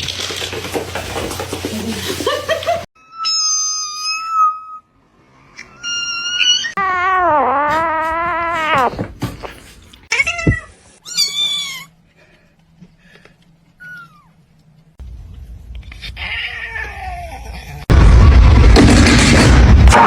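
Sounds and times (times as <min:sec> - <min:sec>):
cat meowing: 0:03.1 - 0:04.8.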